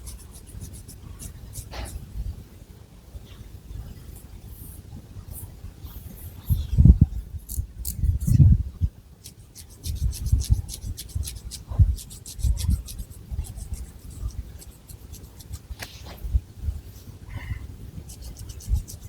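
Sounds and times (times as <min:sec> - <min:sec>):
fingernails scratching hair: 0:09.2 - 0:16.2, 0:18.1 - 0:19.0.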